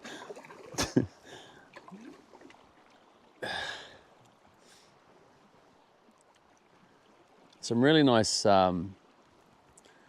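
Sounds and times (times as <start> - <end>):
paddle swishing through water: 0.0 - 3.2
water lapping at boat: 0.0 - 10.0.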